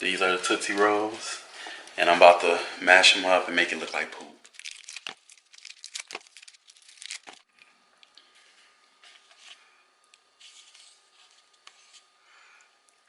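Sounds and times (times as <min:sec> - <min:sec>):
candy wrappers crinkling and tearing: 0:04.4 - 0:07.5.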